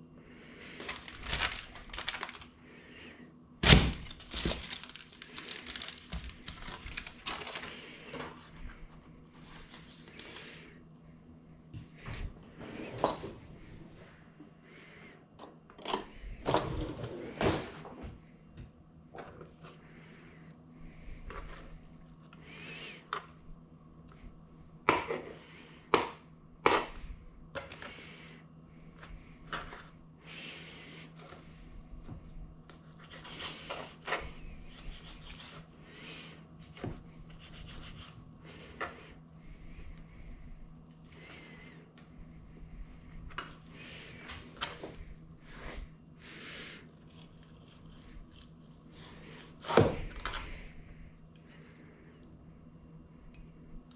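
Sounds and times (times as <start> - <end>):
steady low hum: 0.0 - 53.9
kitchen knocks and thunks: 3.6 - 4.6.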